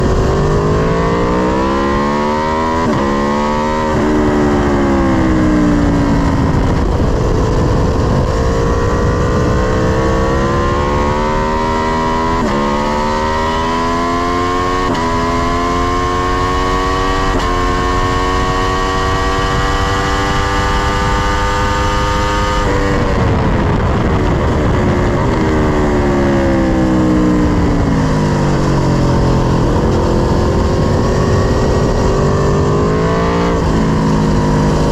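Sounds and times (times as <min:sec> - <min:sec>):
motorcycle engine at full throttle: 0:00.0 - 0:34.9.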